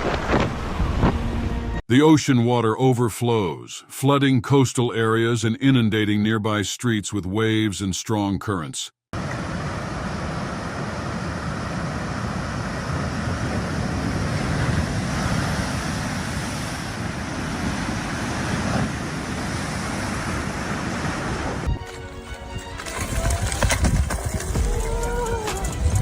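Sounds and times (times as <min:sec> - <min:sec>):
wind: 0:00.0 - 0:26.0
rushing floodwater: 0:09.2 - 0:22.0.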